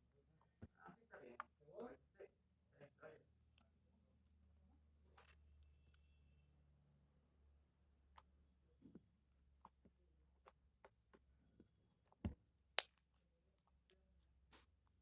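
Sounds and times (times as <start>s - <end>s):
sticky slime clicks and pops: 12.0s - 13.9s.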